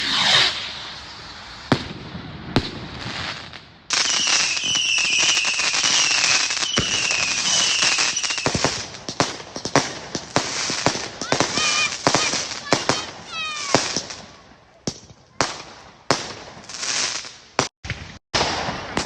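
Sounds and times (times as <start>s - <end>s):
dense firework crackling: 0.0s - 19.0s
fireworks bursting: 0.0s - 19.0s
falling whistle: 4.0s - 8.5s.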